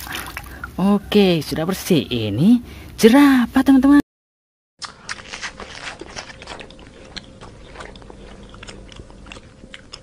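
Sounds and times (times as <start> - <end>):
faint steady hum: 0.0 - 4.0, 4.9 - 10.0
giraffe chewing: 4.8 - 10.0.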